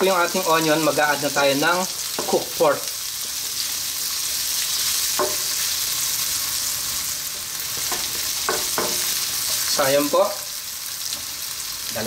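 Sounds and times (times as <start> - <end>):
onion sizzling in oil: 0.0 - 12.0.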